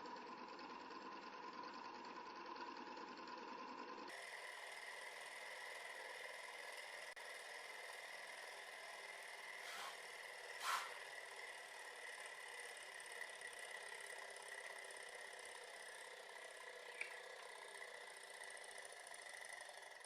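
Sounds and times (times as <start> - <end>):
model engine whirring: 0.0 - 20.0
brief noises: 9.7 - 10.0, 10.6 - 11.0.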